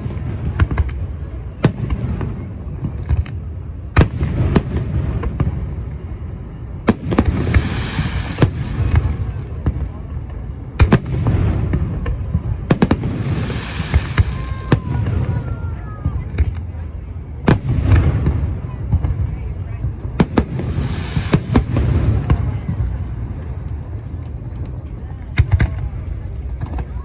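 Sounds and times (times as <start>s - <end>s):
fireworks bangs: 0.0s - 27.0s
fireworks crackling sizzle: 0.0s - 27.0s.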